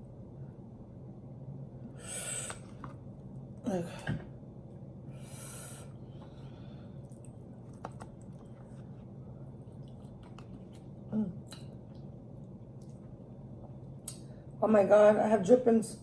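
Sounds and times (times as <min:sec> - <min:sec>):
low hum: 0:00.0 - 0:14.8
breathy hiss: 0:01.9 - 0:02.7, 0:05.1 - 0:07.0
chewing and wet mouth sounds: 0:07.0 - 0:14.4.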